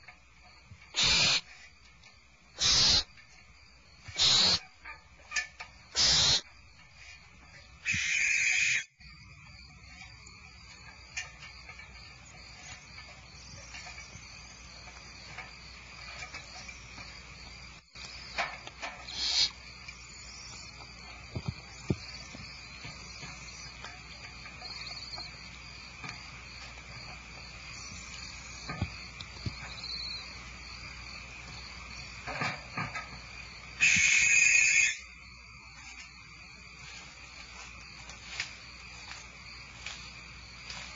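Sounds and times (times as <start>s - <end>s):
owl chicks rasping begging calls: 0.9s - 1.7s, 2.6s - 3.1s, 4.0s - 4.7s, 5.9s - 6.5s, 7.8s - 8.9s, 19.1s - 19.6s, 33.8s - 35.1s.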